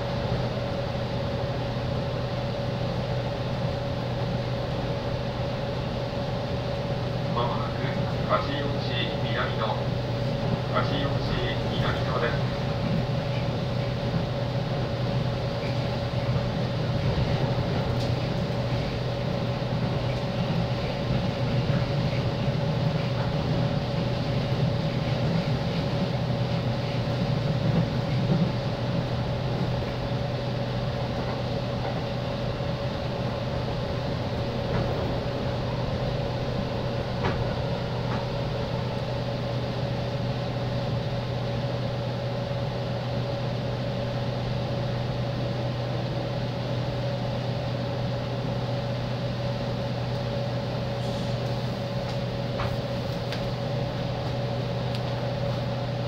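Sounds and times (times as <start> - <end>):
low train rumble: 0.0 - 56.0
two-tone electrical hum: 0.0 - 56.0.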